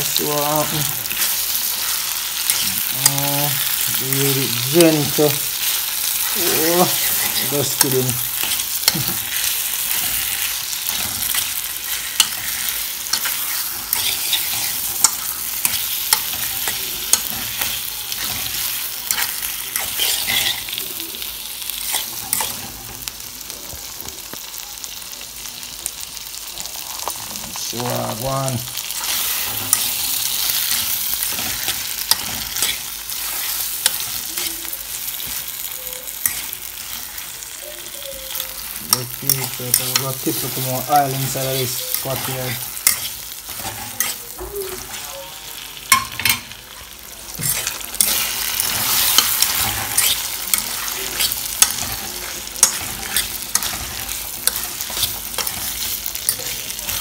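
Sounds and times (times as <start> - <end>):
food sizzling in a frying pan: 0.0 - 57.0
utensil scraping a pan: 4.6 - 20.8, 47.4 - 57.0.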